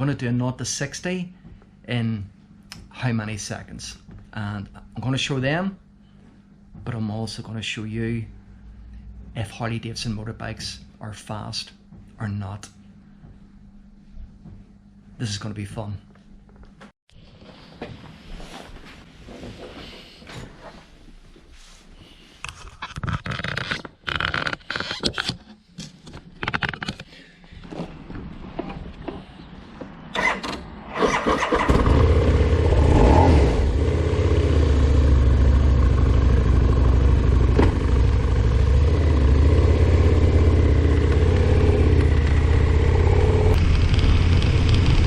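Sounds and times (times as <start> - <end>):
motorcycle engine starting and idling: 30.1 - 45.0.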